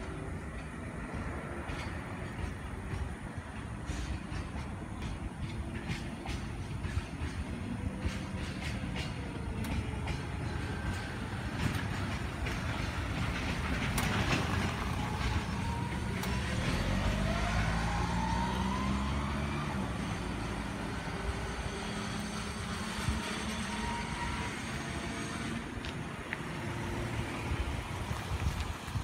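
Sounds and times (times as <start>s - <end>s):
wheel clicks on rails: 0.0s - 17.9s
freight train wheels rumbling: 0.0s - 29.0s.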